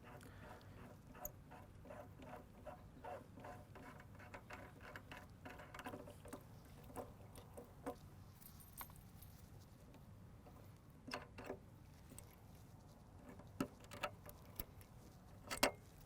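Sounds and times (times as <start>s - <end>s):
faint clicks and taps of parts: 3.4s - 9.0s, 13.2s - 16.0s.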